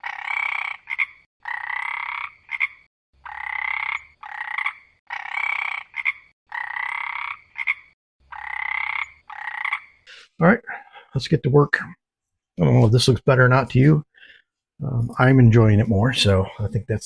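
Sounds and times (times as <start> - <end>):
frog croaking: 0.0 - 10.1.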